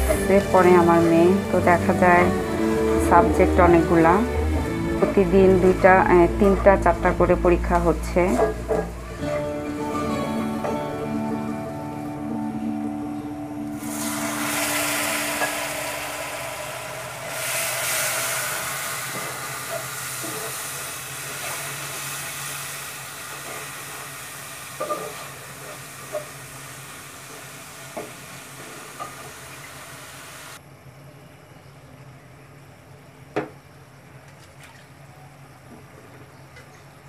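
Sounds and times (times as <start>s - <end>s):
paste sizzling in hot oil: 13.7s - 30.6s.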